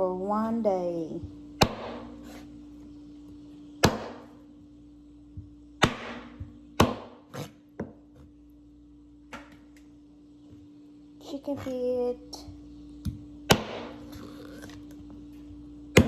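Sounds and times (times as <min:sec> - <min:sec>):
steady low hum: 0:00.0 - 0:16.0
knife chopping on wooden board: 0:01.6 - 0:02.4, 0:03.8 - 0:04.3, 0:05.8 - 0:08.0, 0:13.5 - 0:14.2.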